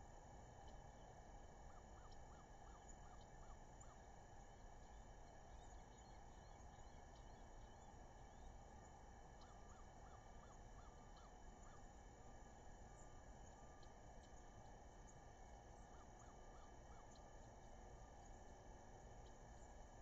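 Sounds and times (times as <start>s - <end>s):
steady outdoor hiss: 0.0s - 20.0s
distant bird calling: 0.5s - 19.8s.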